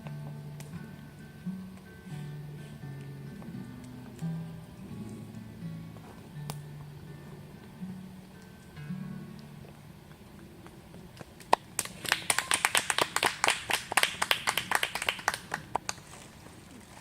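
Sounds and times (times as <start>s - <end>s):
people clapping: 11.4s - 16.0s.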